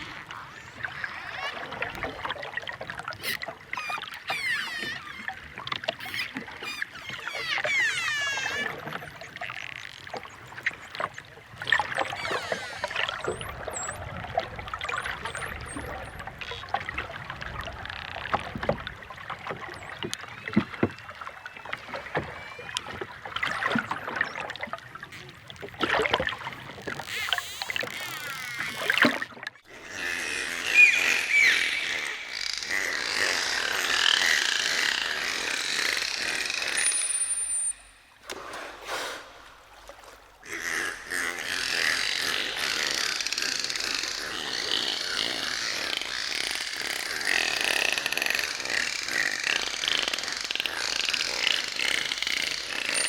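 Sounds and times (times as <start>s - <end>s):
dolphins whistling: 0.0s - 1.9s, 3.2s - 16.7s, 29.8s - 39.5s, 40.4s - 53.0s
dolphins clicking: 0.0s - 53.0s.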